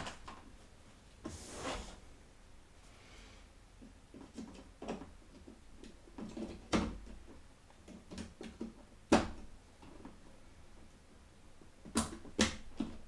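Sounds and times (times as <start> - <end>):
small plastic clicks and knocks: 4.1 - 10.2
sharp plastic snaps: 11.8 - 13.0.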